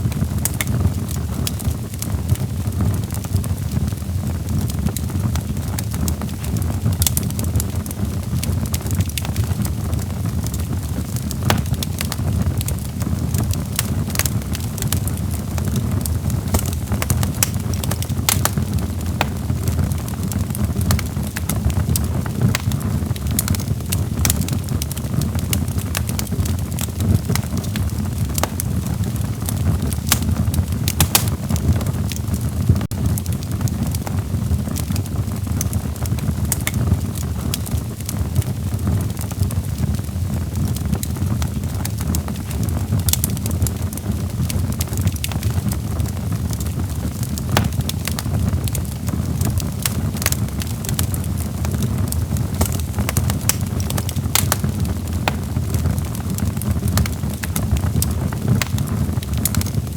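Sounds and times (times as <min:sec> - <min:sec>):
logs crackling in a fireplace: 0:00.0 - 0:59.9.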